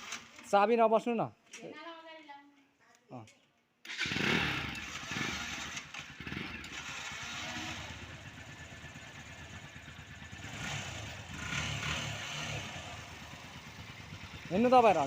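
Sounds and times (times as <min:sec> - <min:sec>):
motorcycle engine running: 0:04.0 - 0:15.0.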